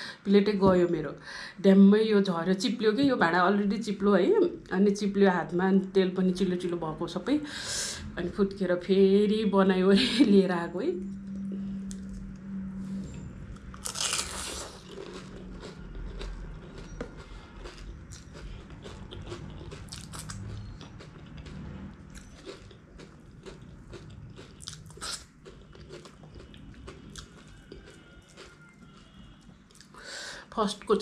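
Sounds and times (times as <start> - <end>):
person crunching and chewing: 13.0 - 30.0.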